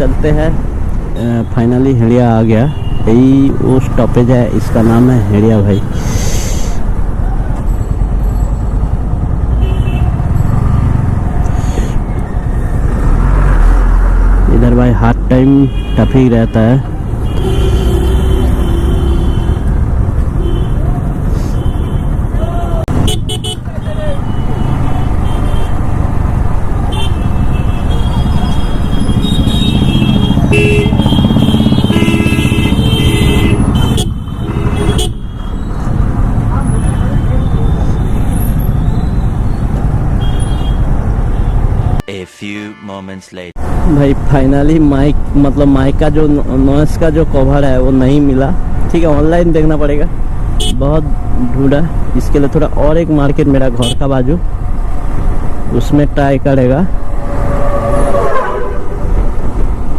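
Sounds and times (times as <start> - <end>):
traffic noise: 0.0 - 59.9
motorcycle engine: 7.8 - 11.5, 24.3 - 36.8
vehicle horns honking: 9.5 - 10.3, 15.5 - 19.8, 20.4 - 22.2, 22.9 - 25.8, 26.9 - 35.7, 40.1 - 43.6, 50.6 - 50.9.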